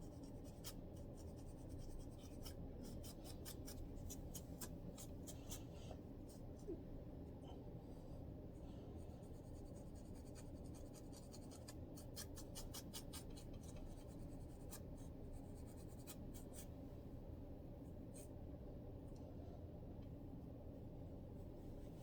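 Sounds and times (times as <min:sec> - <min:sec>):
low steady hum: 0:00.0 - 0:22.0
fingers scratching scalp: 0:09.4 - 0:14.8.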